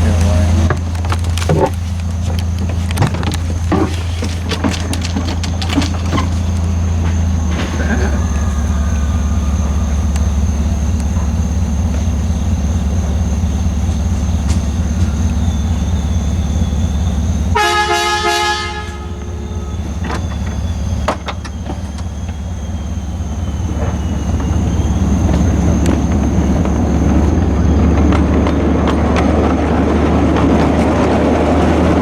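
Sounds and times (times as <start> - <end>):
diesel locomotive engine rumbling: 0.0 - 32.0
locomotive air horn blast: 6.3 - 12.6, 17.2 - 21.4.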